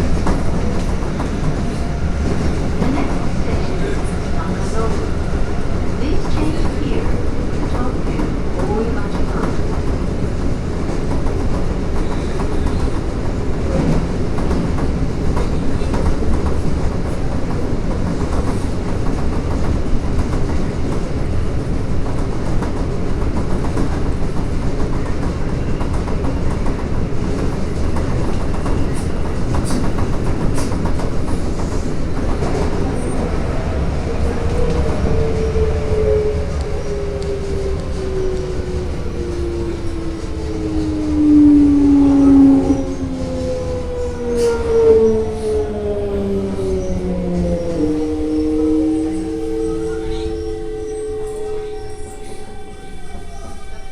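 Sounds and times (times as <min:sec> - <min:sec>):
rail joint clicks: 0:00.0 - 0:53.6
subway train wheels rumbling: 0:00.0 - 0:53.9
whine sliding down in pitch: 0:34.2 - 0:53.9.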